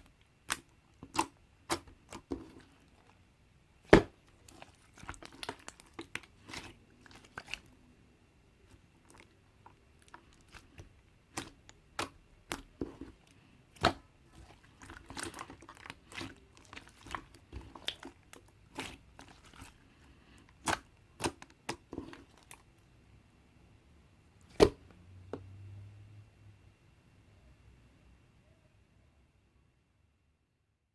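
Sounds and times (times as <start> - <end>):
slime crackling and popping: 0.4 - 3.1, 3.8 - 7.7, 8.7 - 19.8, 20.4 - 22.6.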